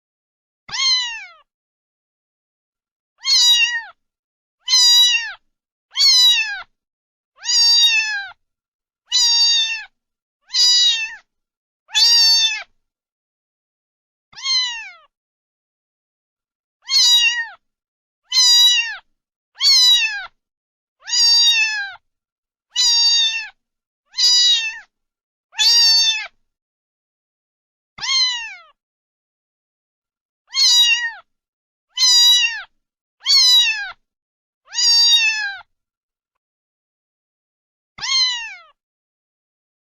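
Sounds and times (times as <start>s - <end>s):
cat meowing: 0.7s - 1.5s, 3.2s - 4.0s, 4.6s - 6.7s, 7.4s - 8.4s, 9.1s - 11.3s, 11.9s - 12.7s, 14.3s - 15.1s, 16.8s - 17.6s, 18.3s - 20.4s, 21.0s - 22.0s, 22.7s - 24.9s, 25.6s - 26.4s, 28.0s - 28.8s, 30.5s - 31.3s, 31.9s - 34.0s, 34.7s - 35.7s, 38.0s - 38.8s.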